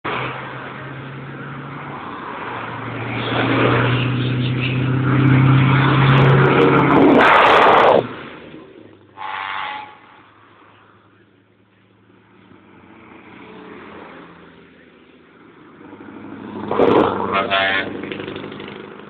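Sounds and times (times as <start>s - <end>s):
loud rushing burst: 6.4s - 8.3s.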